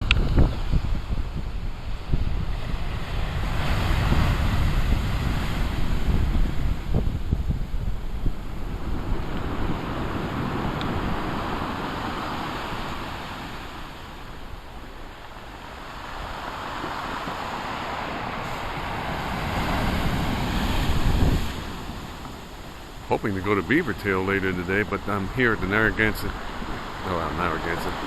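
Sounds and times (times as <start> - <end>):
waves breaking on shore: 0.0 - 28.0
wind on microphone: 0.0 - 28.0.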